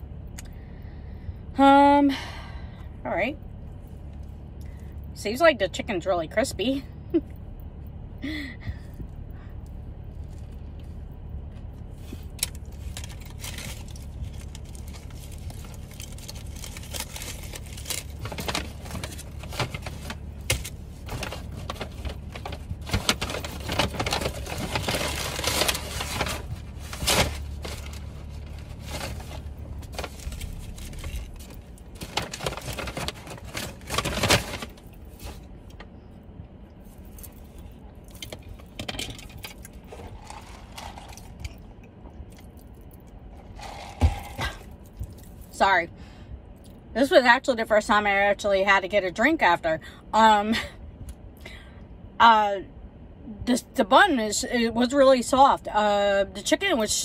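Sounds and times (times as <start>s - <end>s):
steady low hum: 0.0s - 57.0s
chewing crispy food: 39.6s - 45.4s.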